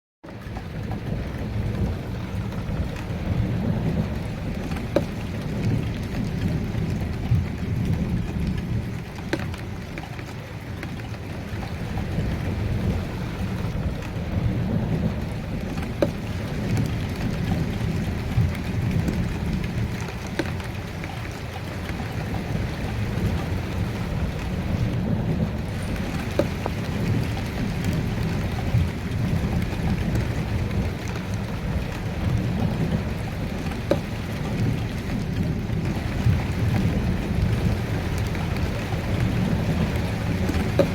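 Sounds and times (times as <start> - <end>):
steady rain falling: 0.2 - 40.9
low rolling thunder: 0.4 - 40.9.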